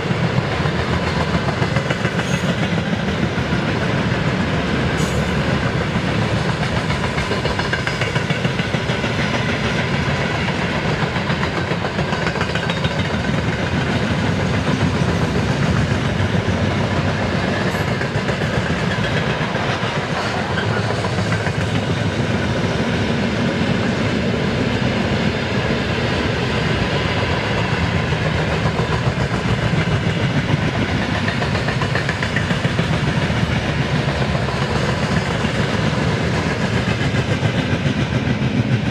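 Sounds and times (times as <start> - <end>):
wheels clattering over rails: 0.0 - 22.4
freight train rolling past: 0.0 - 38.9.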